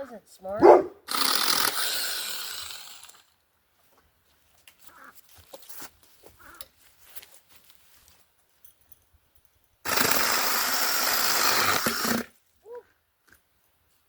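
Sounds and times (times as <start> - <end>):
chainsaw cutting branch: 1.0 - 3.3, 9.9 - 12.3
branches rustling: 3.8 - 8.5.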